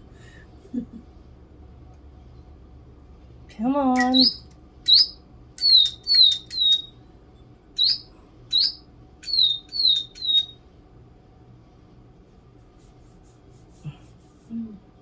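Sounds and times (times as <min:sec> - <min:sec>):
electronic toy birds chirping: 0:04.0 - 0:07.0, 0:07.8 - 0:10.6.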